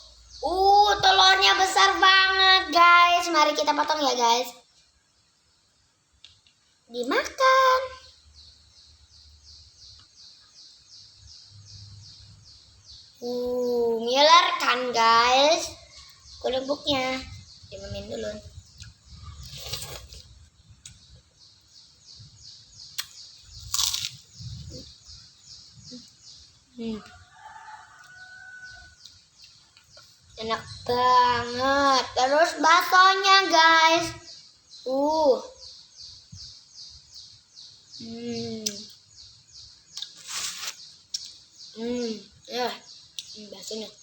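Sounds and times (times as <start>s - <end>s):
bird chirping: 0.0s - 44.0s
crunch of biting a cracker: 23.0s - 24.2s.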